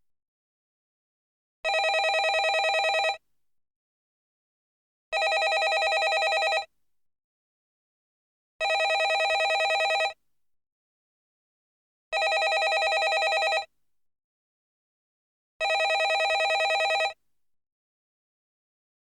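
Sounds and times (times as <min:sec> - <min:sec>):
landline telephone ringing: 0:01.7 - 0:03.2, 0:05.2 - 0:06.7, 0:08.6 - 0:10.2, 0:12.2 - 0:13.7, 0:15.6 - 0:17.2.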